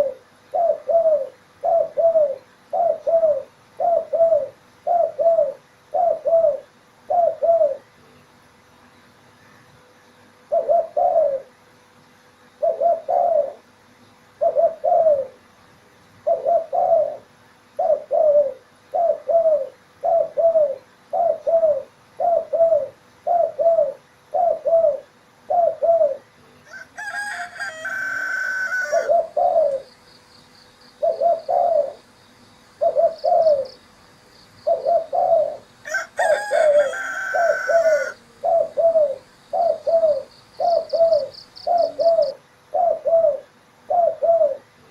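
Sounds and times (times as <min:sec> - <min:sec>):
dove cooing: 0:00.0 - 0:08.0, 0:10.4 - 0:11.6, 0:12.6 - 0:15.5, 0:16.2 - 0:30.2, 0:30.9 - 0:44.9
rooster crowing: 0:26.6 - 0:29.4, 0:35.8 - 0:38.3.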